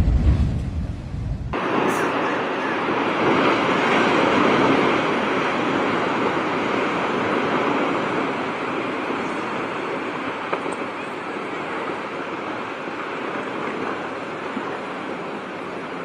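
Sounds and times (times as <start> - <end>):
deep low rumble: 0.0 - 1.6
loud rushing water: 1.5 - 16.0.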